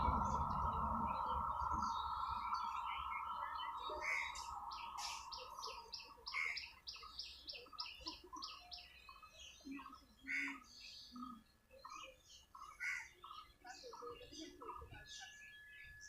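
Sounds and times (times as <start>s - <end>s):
faint steady hum: 0.0s - 8.0s
birds chirping: 0.0s - 16.0s.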